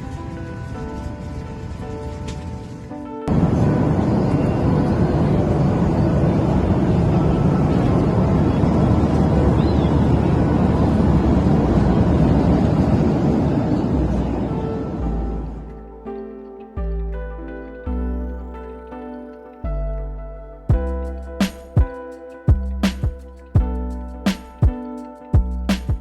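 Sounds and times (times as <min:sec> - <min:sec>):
airplane cabin engine rumble: 0:00.0 - 0:15.8.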